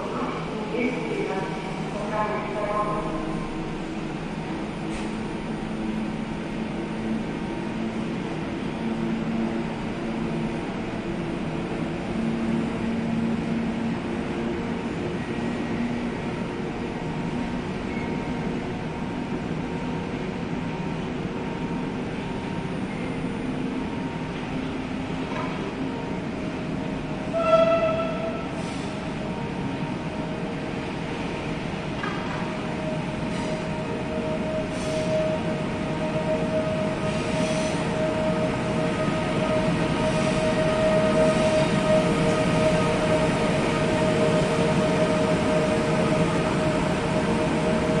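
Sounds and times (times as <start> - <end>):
electric trains humming and rumbling: 0.0 - 48.0
train horn blast: 27.3 - 28.5.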